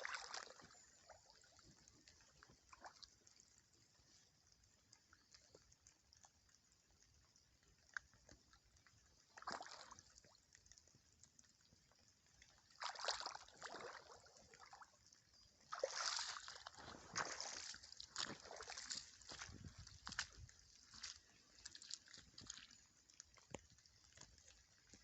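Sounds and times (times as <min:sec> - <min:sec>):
rubber boots stepping on wet ground: 0:15.7 - 0:25.0.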